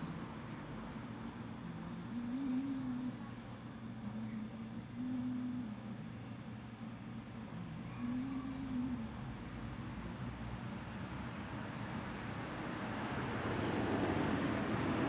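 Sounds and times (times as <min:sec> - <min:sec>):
high-pitched insect drone: 0:01.5 - 0:11.5.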